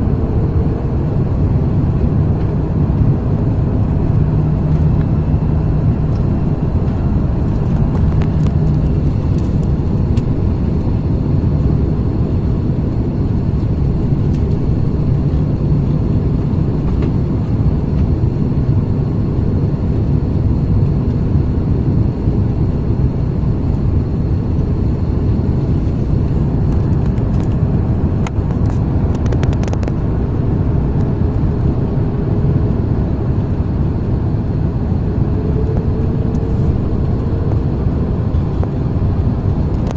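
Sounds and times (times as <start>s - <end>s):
jet engine cabin hum: 0.0s - 39.9s.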